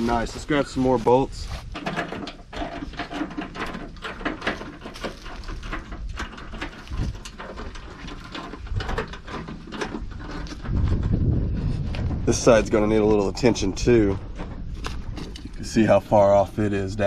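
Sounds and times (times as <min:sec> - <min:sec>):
steady low rumble: 0:10.1 - 0:17.0.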